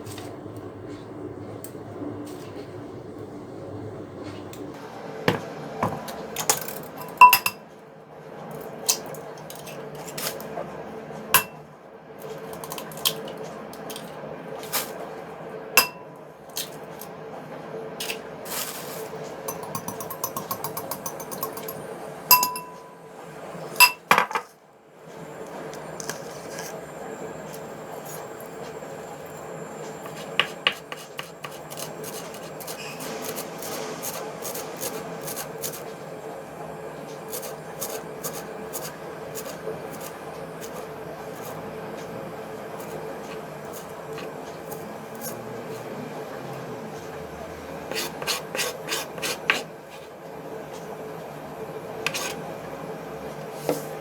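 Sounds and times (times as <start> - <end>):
utensils and dishes clinking: 5.3 - 7.6, 11.4 - 11.6, 18.0 - 23.0, 23.8 - 24.5.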